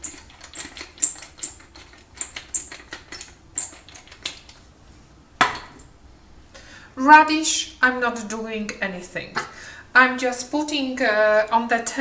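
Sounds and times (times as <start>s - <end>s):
pepper mill grinding: 0.0s - 4.5s.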